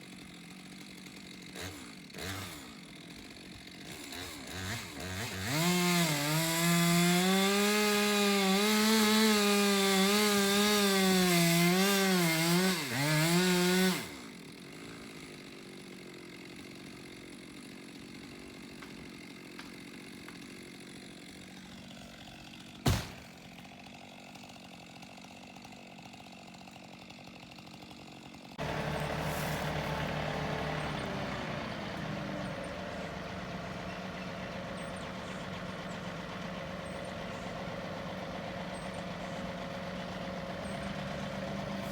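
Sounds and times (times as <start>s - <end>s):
chainsaw cutting wood: 0.0s - 41.9s
tractor engine idling: 28.6s - 41.9s.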